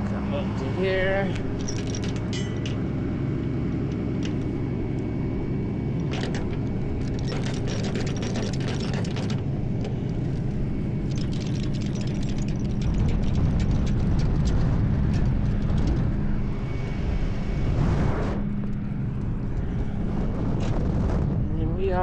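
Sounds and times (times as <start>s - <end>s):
truck engine idling: 0.0s - 12.8s
mechanical clicking and rattling: 1.3s - 3.0s, 3.9s - 16.5s.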